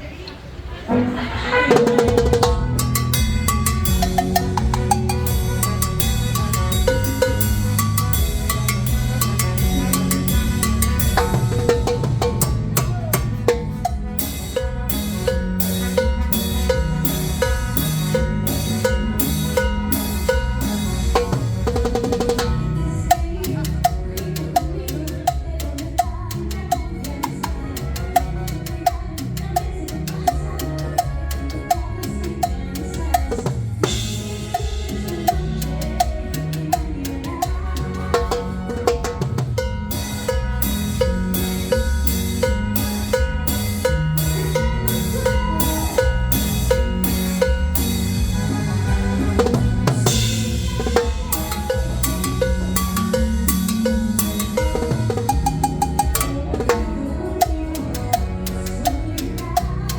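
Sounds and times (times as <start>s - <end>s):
drum kit and percussion beat: 0.9s - 59.9s
live band playing cumbia: 0.9s - 59.9s.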